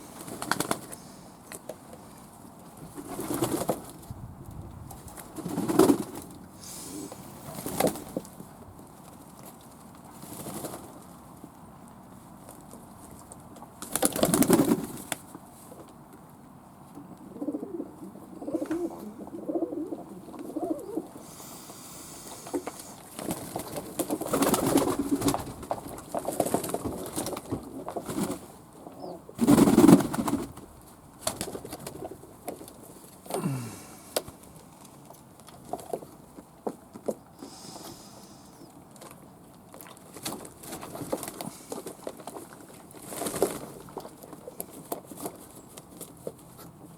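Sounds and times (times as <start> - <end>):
pigeons cooing: 17.0 - 21.6.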